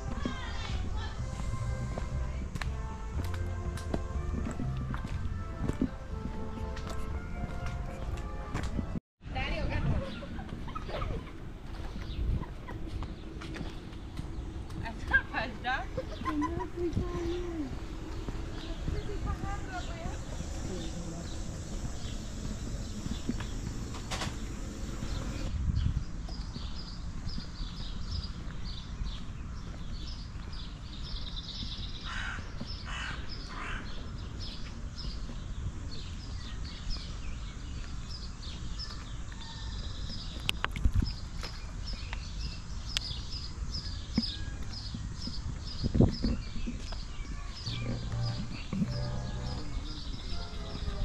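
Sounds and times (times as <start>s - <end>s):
low rumble: 0.0s - 8.2s, 8.8s - 29.0s, 47.5s - 51.0s
harsh low bird calls: 41.0s - 51.0s.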